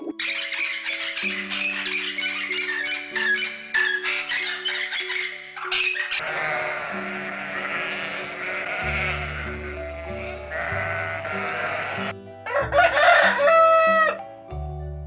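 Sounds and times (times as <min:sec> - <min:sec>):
background music low notes: 0:00.0 - 0:15.0
farm animal bleating: 0:06.2 - 0:12.1
rooster crowing: 0:06.2 - 0:14.2.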